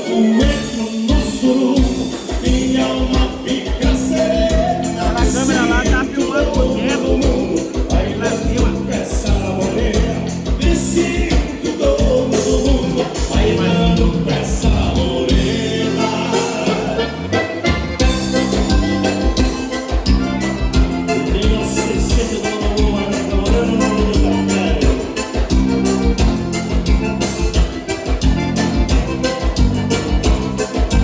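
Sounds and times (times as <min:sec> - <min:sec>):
person singing: 0:00.0 - 0:17.6, 0:20.6 - 0:26.0
live dance band music: 0:00.0 - 0:31.0.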